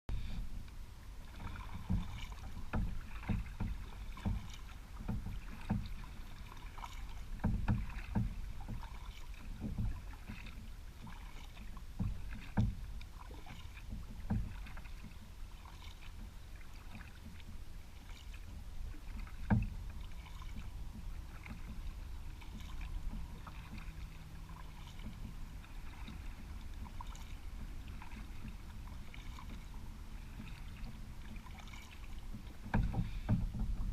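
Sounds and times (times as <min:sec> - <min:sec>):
paddle knocks: 0:00.1 - 0:33.9
water sloshing and splashing: 0:00.1 - 0:33.9.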